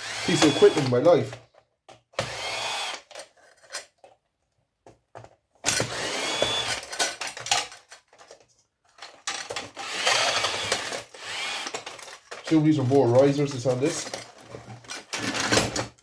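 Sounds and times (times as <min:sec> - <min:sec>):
cordless drill motor whine: 0:00.0 - 0:00.9, 0:02.2 - 0:03.0, 0:05.8 - 0:06.8, 0:09.8 - 0:11.8
loose parts clicking and rattling: 0:05.1 - 0:16.0.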